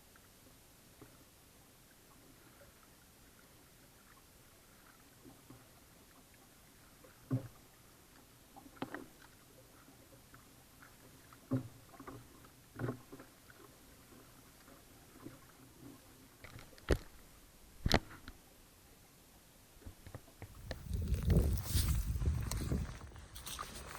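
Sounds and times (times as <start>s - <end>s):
paddle splashes and hull knocks: 4.0s - 18.4s.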